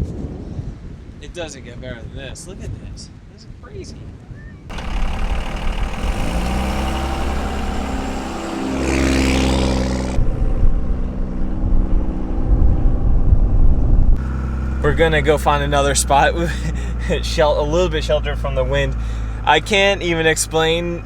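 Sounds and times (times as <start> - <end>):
truck engine accelerating: 4.7 - 21.0.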